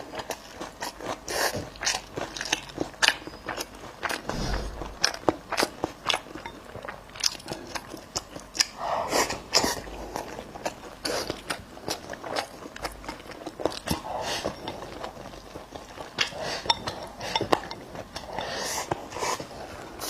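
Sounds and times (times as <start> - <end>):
person chewing food: 0.0 - 20.0.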